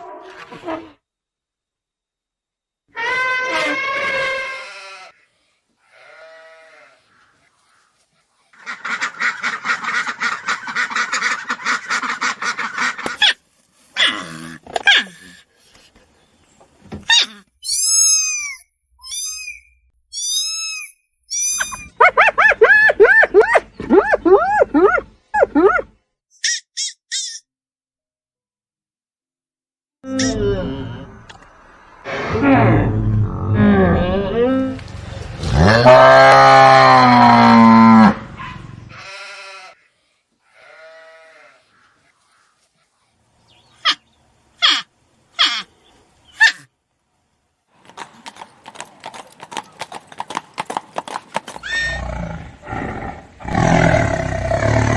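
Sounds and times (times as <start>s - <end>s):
animal high-pitched calls: 17.1s - 27.4s, 44.6s - 45.7s, 49.1s - 52.2s.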